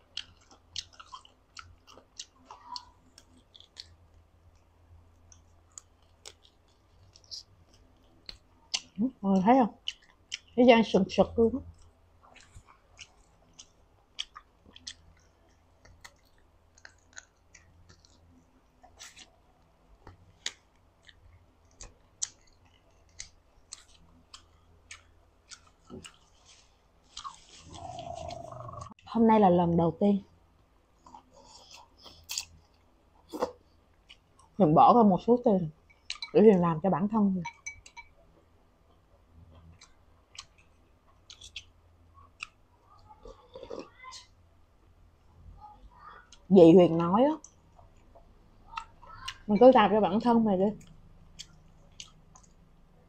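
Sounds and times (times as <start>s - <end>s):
faint low hum: 0.0s - 53.0s
biting and chewing chicken: 11.8s - 28.9s.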